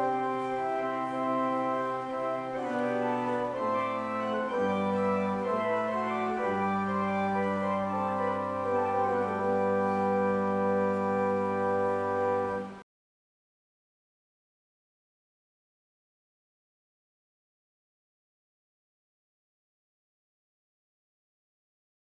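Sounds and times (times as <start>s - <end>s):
organ playing sustained chords: 0.0s - 12.8s.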